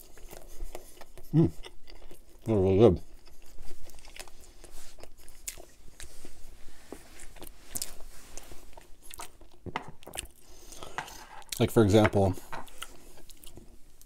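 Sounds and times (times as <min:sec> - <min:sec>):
chewing with wet mouth clicks: 0:00.0 - 0:06.2, 0:08.7 - 0:10.4.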